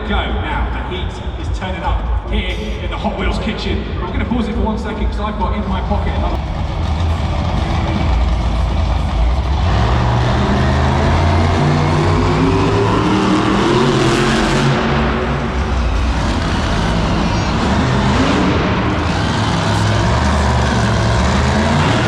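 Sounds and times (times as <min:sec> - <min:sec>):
truck engine revving: 0:05.6 - 0:22.0.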